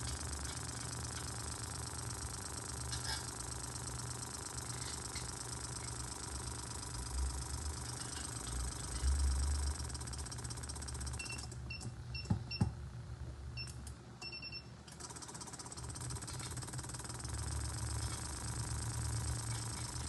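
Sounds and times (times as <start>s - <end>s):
short electronic beeps: 11.1s - 12.3s.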